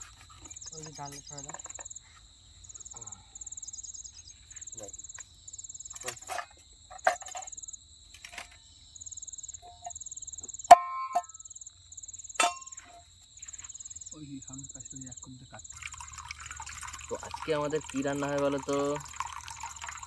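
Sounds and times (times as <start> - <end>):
insects trilling in pulses: 0.0 - 6.9, 11.4 - 20.0
metallic clank of cookware: 10.7 - 11.4, 12.4 - 13.0.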